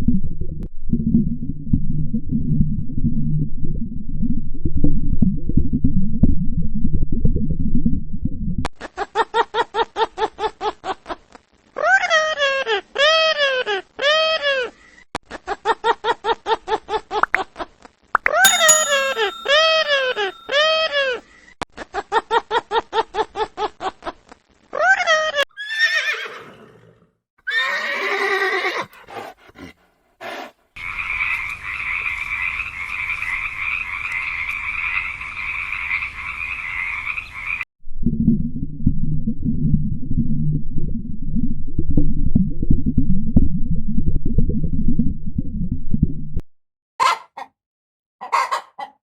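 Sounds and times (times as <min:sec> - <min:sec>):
horse whinnying: 0:25.6 - 0:28.9.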